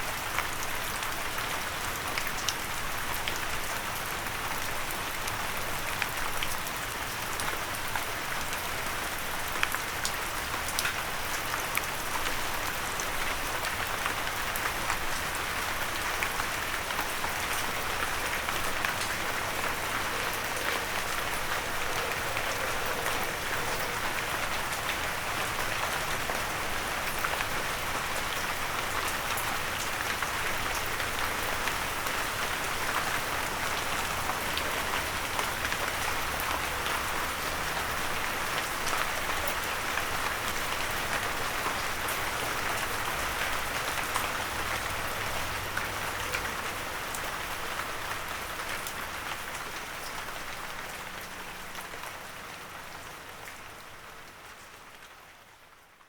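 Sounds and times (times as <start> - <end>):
rain on a windowsill: 0.0 - 56.0
raindrops ticking: 15.9 - 28.0.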